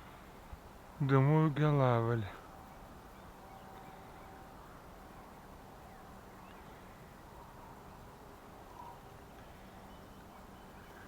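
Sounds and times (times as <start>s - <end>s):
faint bird chirps: 2.4s - 11.0s.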